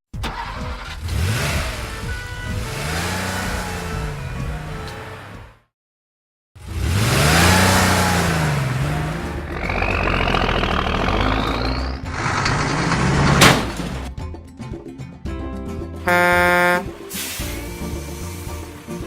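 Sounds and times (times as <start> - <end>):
car engine revving: 0.3 - 5.6, 6.6 - 14.1
rising engine whine: 7.6 - 13.8.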